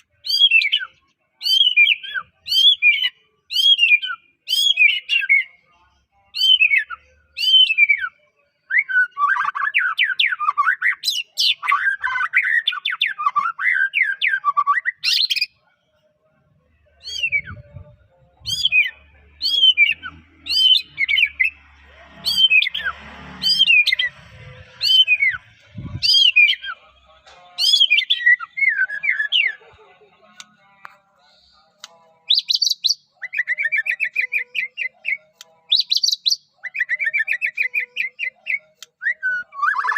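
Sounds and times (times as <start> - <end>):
songbird warbling and whistling: 0.2 - 5.6, 6.3 - 15.5, 17.0 - 21.6, 22.2 - 26.8, 27.6 - 29.6, 32.2 - 39.9.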